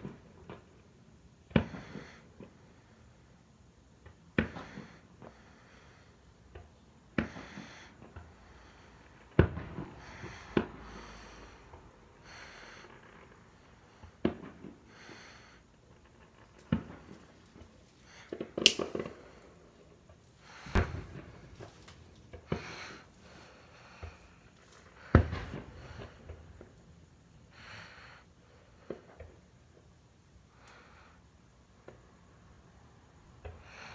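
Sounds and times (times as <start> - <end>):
fireworks hissing crackle: 7.1 - 29.8
fireworks banging: 9.4 - 11.3, 16.2 - 27.0.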